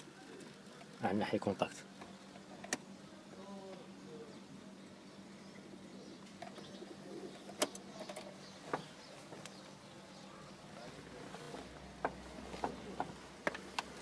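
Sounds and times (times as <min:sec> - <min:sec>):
sharp clicks: 0:07.5 - 0:08.3.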